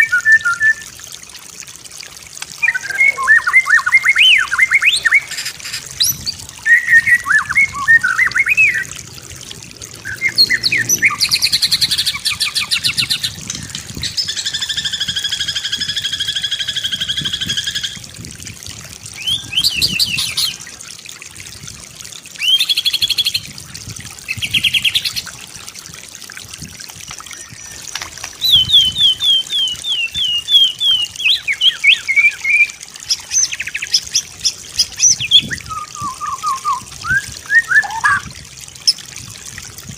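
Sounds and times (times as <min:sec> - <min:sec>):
songbird singing: 0:02.6 - 0:08.9, 0:10.0 - 0:18.0, 0:19.2 - 0:20.6, 0:27.3 - 0:38.3.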